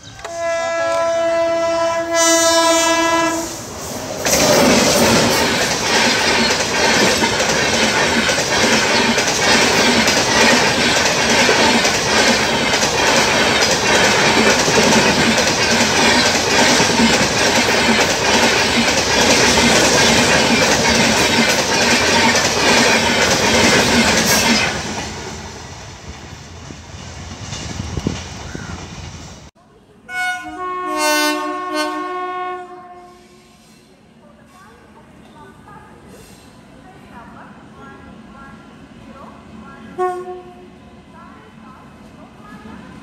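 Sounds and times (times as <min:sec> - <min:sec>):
train coaches rushing past: 0:00.0 - 0:29.5
wheels clacking over rail joints: 0:04.2 - 0:25.2.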